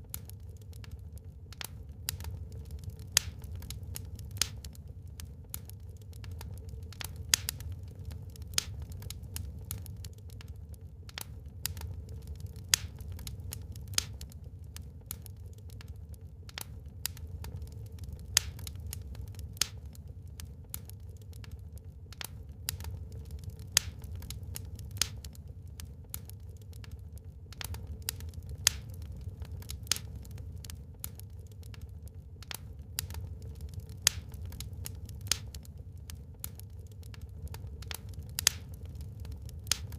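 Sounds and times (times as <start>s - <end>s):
low rumble of fire: 0.0s - 39.9s
wood fire crackling and popping: 0.0s - 39.9s.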